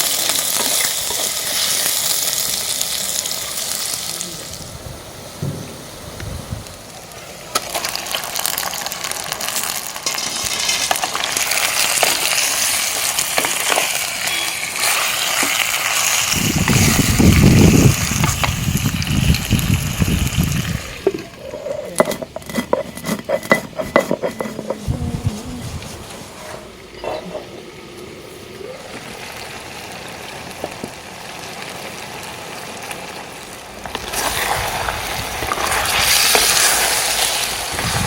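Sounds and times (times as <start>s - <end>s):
food sizzling in hot oil: 0.0s - 6.0s, 6.6s - 21.4s, 29.0s - 38.0s.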